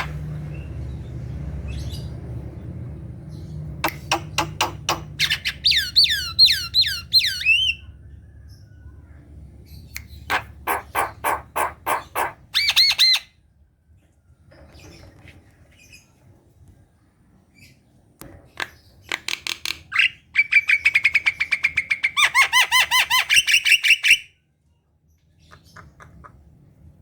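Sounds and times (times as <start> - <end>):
bird singing varied song: 0.0 - 13.4.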